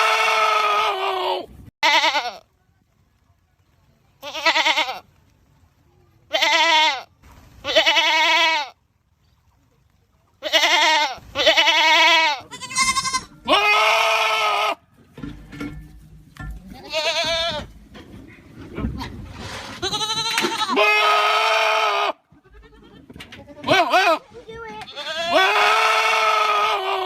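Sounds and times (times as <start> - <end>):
goats bleating loudly: 0.0 - 2.4, 4.2 - 5.0, 6.3 - 8.8, 10.4 - 14.8, 16.8 - 17.7, 19.8 - 27.0.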